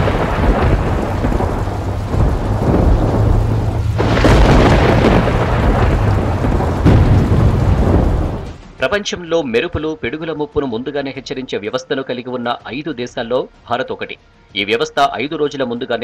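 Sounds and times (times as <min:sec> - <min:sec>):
rolling thunder: 0:00.0 - 0:08.7
rain: 0:00.0 - 0:08.8
sharp thunder crack: 0:00.0 - 0:08.8.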